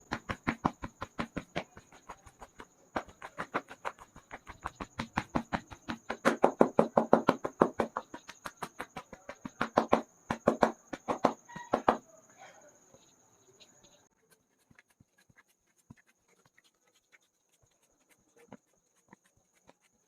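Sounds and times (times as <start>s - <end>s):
hands slapping on head: 0.0s - 12.0s.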